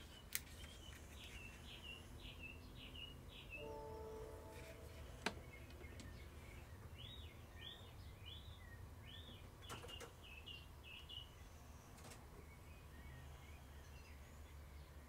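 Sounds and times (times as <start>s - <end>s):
low steady hum: 0.0s - 9.6s
faint bird chirping: 0.0s - 15.0s.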